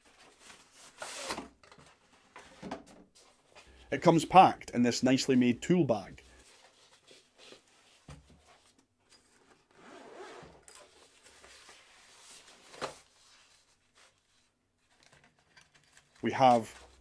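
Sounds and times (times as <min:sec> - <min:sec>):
zipper pulled open: 0:09.8 - 0:10.8.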